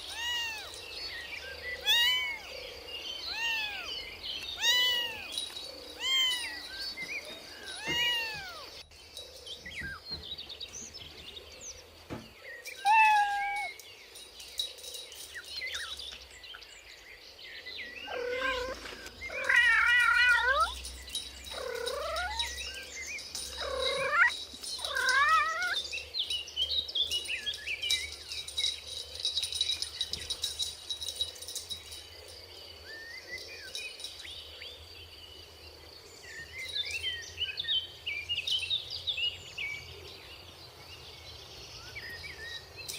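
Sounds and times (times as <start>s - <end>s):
cats meowing: 0.0s - 0.9s, 1.8s - 2.6s, 3.2s - 8.8s, 12.8s - 13.8s, 18.0s - 20.8s, 21.5s - 22.8s, 23.4s - 25.8s
faint high chirping: 0.0s - 39.1s.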